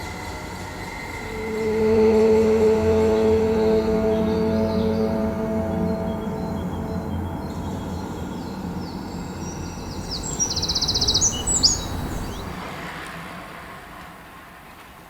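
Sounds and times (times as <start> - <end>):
low outdoor rumble: 0.6 - 12.6
songbird chirping and trilling: 1.0 - 12.6.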